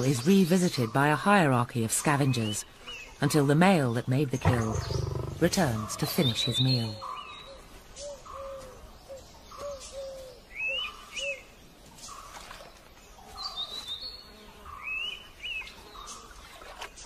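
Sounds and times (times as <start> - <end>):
birds whistling: 4.4 - 11.5.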